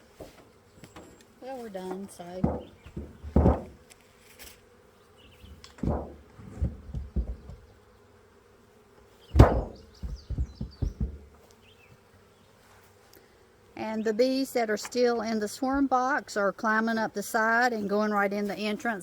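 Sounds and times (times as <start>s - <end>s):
bees humming: 0.0s - 19.0s
dull bumps and knocks: 1.9s - 3.9s, 5.4s - 7.7s, 9.3s - 11.4s.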